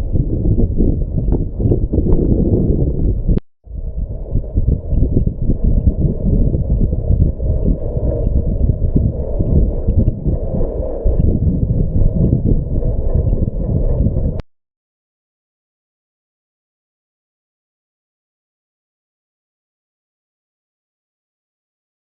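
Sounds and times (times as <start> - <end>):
wind buffeting microphone: 0.0 - 14.4.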